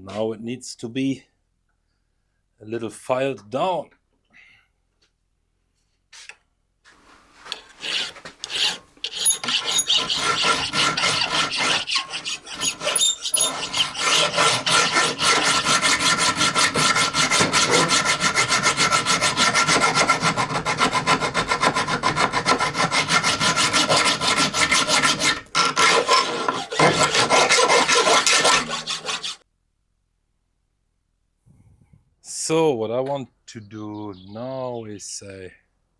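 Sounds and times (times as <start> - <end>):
file rasping on steel: 7.4 - 29.4.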